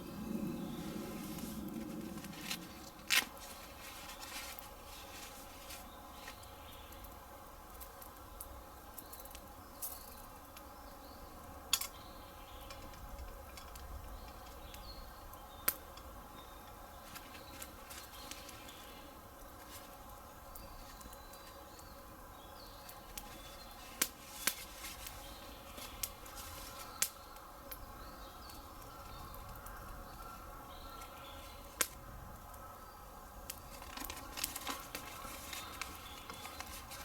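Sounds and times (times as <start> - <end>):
campfire burning: 0.0 - 37.0
fire crackling pops: 0.0 - 37.0.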